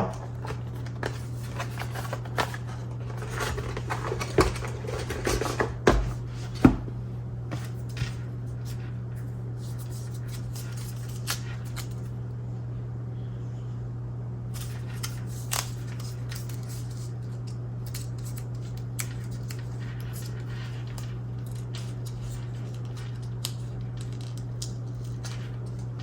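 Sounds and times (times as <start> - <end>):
hands handling packaging: 0.0 - 6.8
steady low hum: 0.0 - 26.0.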